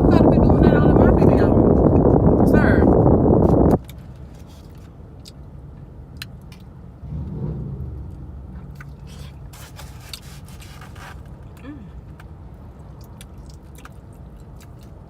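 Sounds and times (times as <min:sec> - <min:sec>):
person chewing: 0:12.9 - 0:15.0.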